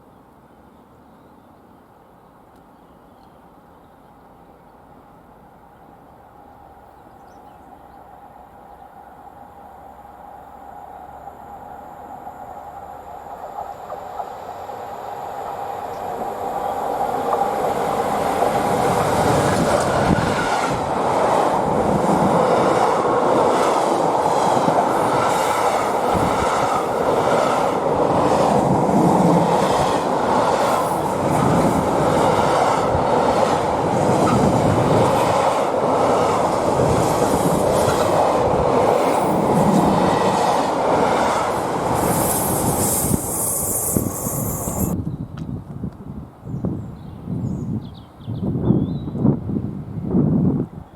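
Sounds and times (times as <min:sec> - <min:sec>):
train rumbling past: 0:03.7 - 0:45.0
train wheels clicking on rail joints: 0:15.5 - 0:45.0.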